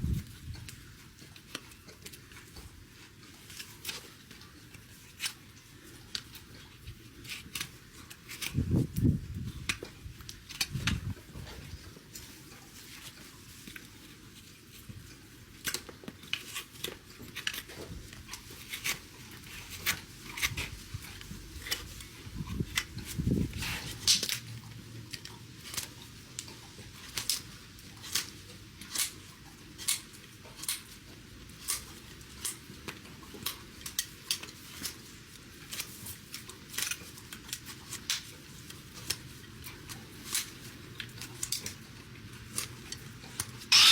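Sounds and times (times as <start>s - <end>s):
hoof trimmers snipping: 43.7s - 43.9s.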